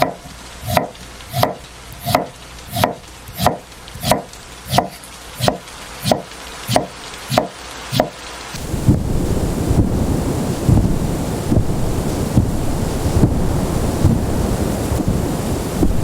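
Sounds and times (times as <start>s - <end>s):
knife chopping on wooden board: 0.0s - 8.1s.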